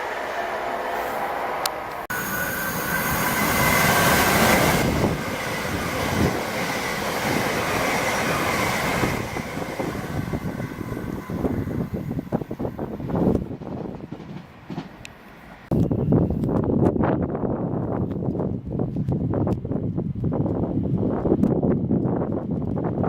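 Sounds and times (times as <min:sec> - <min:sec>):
train wheels rushing past: 0:00.0 - 0:15.7
wind buffeting microphone: 0:02.8 - 0:15.0, 0:15.7 - 0:23.0.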